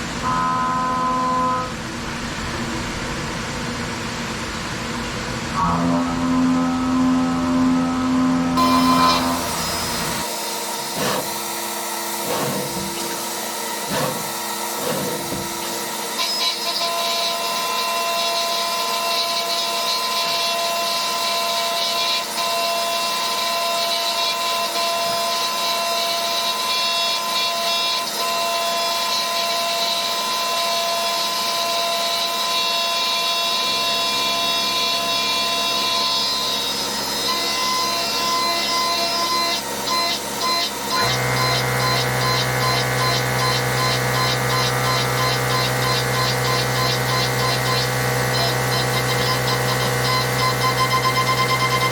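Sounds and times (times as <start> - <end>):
milling machine whine: 0.0 - 51.9
deep hum: 5.4 - 10.2.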